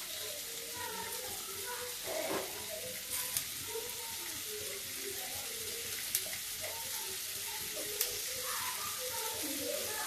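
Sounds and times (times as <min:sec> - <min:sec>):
masala frying sizzle: 0:00.0 - 0:10.0.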